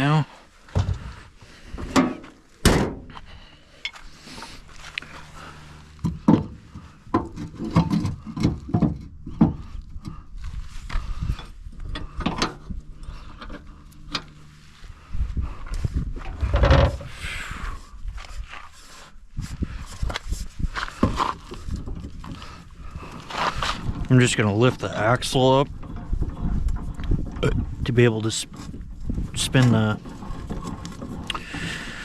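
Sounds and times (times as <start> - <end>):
metal parts and tools clunking: 5.2 - 10.2, 16.2 - 17.1.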